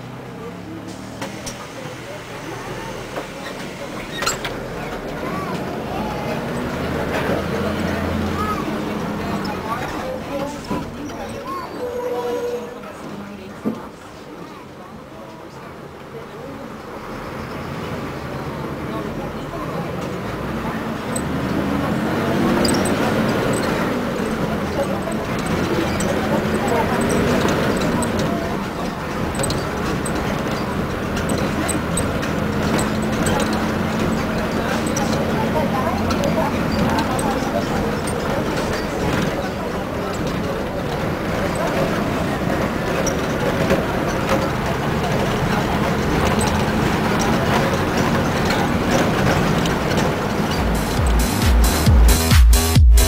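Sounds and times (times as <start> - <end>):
bus engine hum: 0.0 - 53.0
faint voices: 0.0 - 53.0
road noise: 0.0 - 53.0
rattles and clicks: 20.0 - 53.0
electronic dance music: 50.6 - 53.0.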